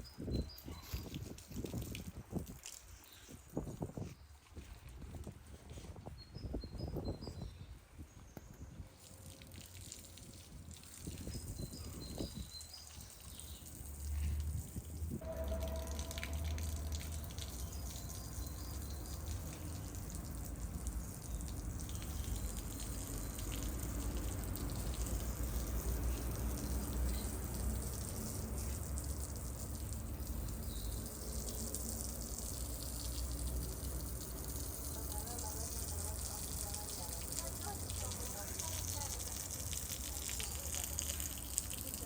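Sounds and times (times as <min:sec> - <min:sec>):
water running and dripping: 0:00.1 - 0:05.8, 0:08.3 - 0:42.0
low rumble: 0:15.2 - 0:19.2.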